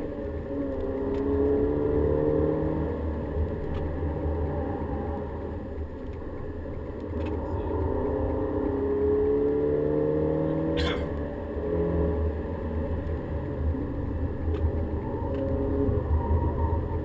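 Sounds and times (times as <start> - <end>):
car engine accelerating: 0.0 - 17.0
tyre and road rumble: 10.1 - 11.6.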